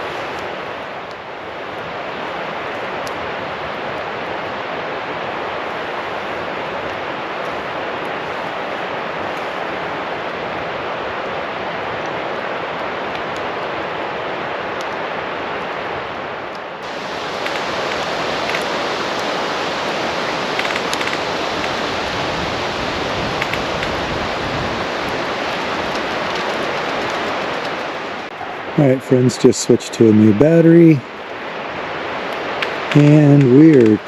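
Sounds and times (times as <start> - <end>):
steady rushing noise: 0.0 - 34.0
faint clicks: 20.5 - 21.8, 23.4 - 24.0.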